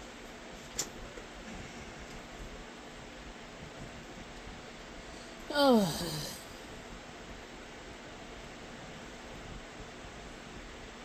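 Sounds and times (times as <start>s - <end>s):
man saying oh: 5.5s - 6.4s.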